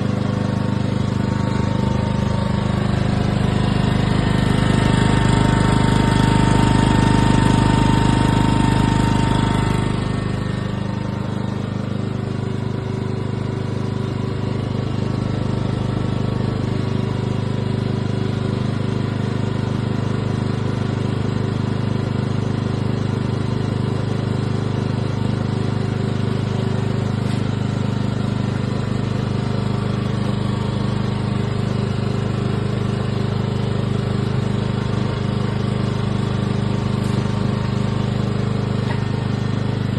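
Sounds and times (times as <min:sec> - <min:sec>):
generator running: 0:00.0 - 0:39.9.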